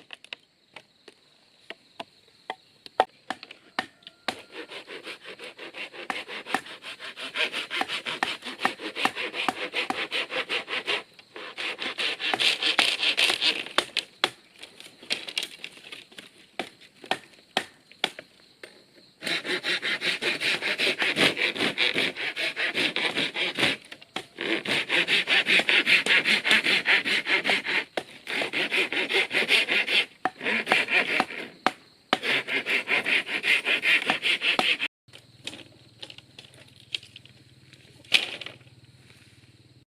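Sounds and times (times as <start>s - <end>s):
hand saw cutting wood: 4.2s - 14.3s, 19.2s - 34.9s.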